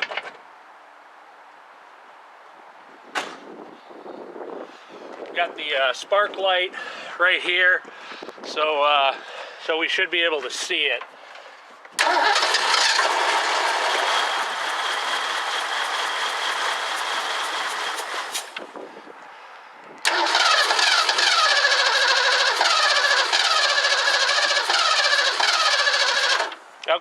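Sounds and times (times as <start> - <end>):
car engine starting and running: 12.0 - 18.7, 20.0 - 26.6.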